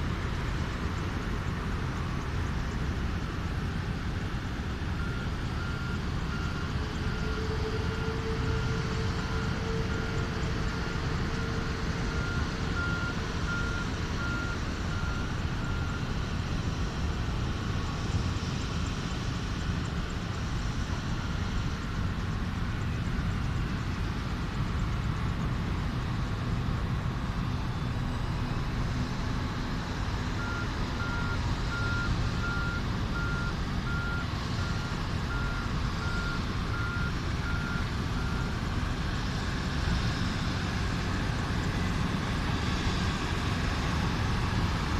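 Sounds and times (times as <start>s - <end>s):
engine and traffic rumble: 0.0s - 44.9s
reversing alarm beeping: 4.9s - 16.2s, 30.4s - 38.7s.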